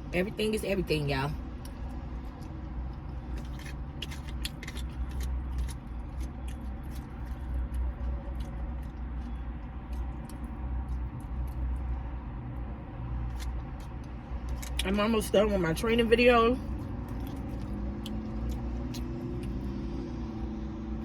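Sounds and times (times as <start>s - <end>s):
low hum in car cabin: 0.0s - 21.0s
person chewing: 1.6s - 12.0s, 13.2s - 14.9s, 16.6s - 19.9s.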